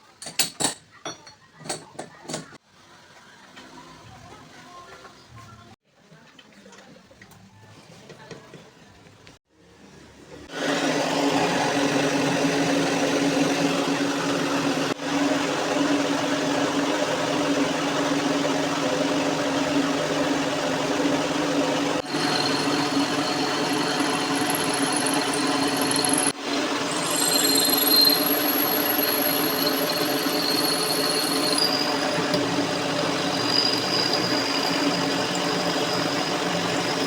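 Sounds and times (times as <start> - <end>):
electric power tool motor running: 20.0 - 37.0.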